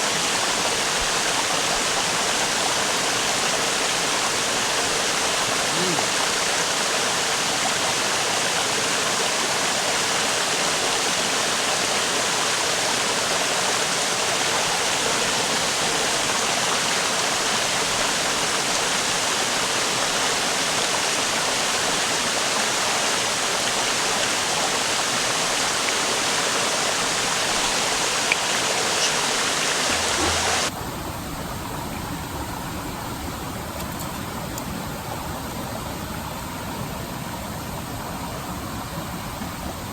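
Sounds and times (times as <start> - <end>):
river water rushing: 0.0 - 31.8.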